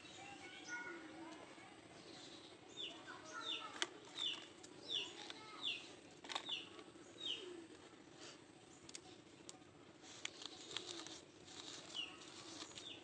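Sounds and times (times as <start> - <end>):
faint steady hum: 0.0 - 13.0
small bird chirping: 2.0 - 7.7, 8.6 - 13.0.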